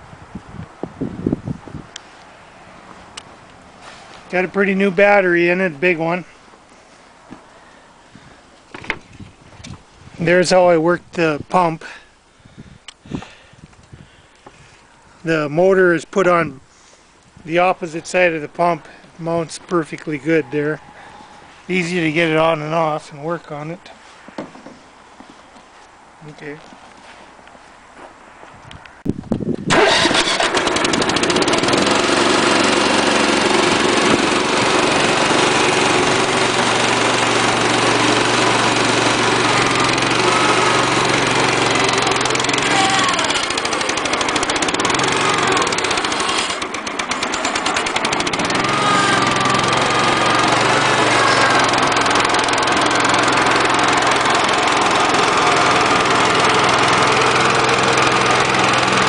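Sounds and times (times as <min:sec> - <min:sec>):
garden tractor engine running: 0:29.7 - 0:59.0.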